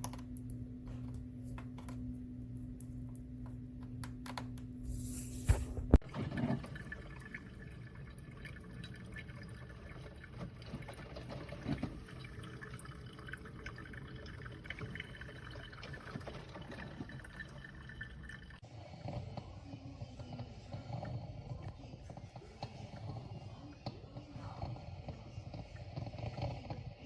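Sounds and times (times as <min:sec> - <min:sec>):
coffee maker dripping: 0:05.5 - 0:18.6.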